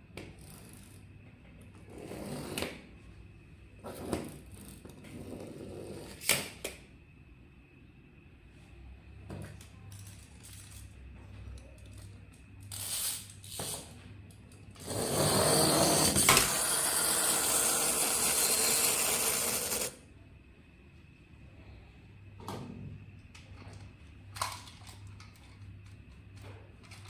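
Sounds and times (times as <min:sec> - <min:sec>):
toy mechanism whirring: 0:09.9 - 0:11.0, 0:12.6 - 0:13.9, 0:14.7 - 0:20.0.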